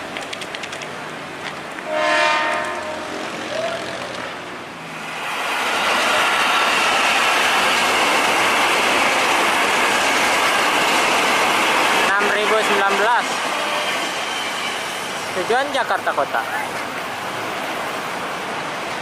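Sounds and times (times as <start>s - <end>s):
train wheels on rails: 0.0s - 19.0s
horn: 1.9s - 3.0s.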